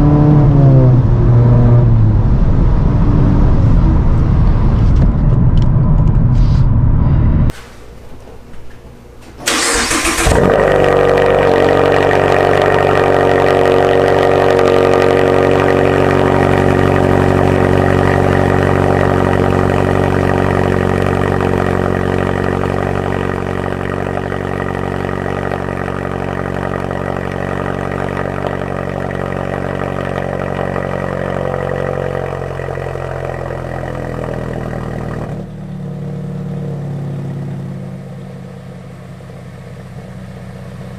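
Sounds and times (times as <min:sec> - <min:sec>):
engine starter cranking: 0:09.4 - 0:10.6
car engine idling: 0:09.4 - 0:40.9.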